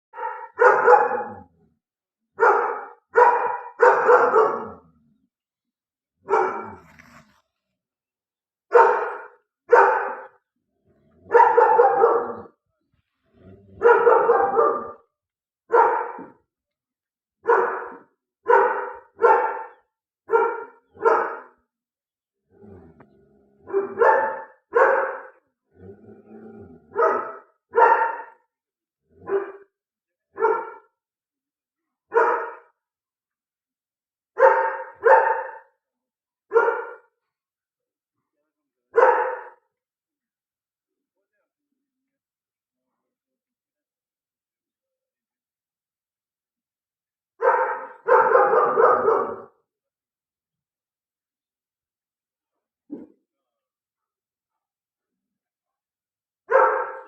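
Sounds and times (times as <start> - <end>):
dog barking: 0.1 - 1.5, 2.4 - 4.9, 6.2 - 7.1, 8.7 - 10.4, 11.2 - 12.5, 13.8 - 15.1, 15.7 - 16.4, 17.4 - 21.6, 23.6 - 25.4, 26.9 - 28.5, 29.2 - 30.9, 32.1 - 32.8, 34.4 - 35.8, 36.5 - 37.1, 38.9 - 39.7, 47.4 - 49.6, 56.5 - 57.0.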